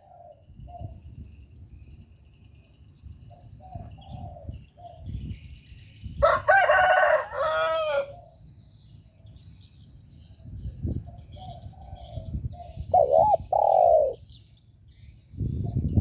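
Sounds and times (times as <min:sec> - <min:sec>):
dove cooing: 0:00.0 - 0:00.9, 0:03.3 - 0:05.0, 0:11.1 - 0:14.3
small birds chirping: 0:00.0 - 0:16.0.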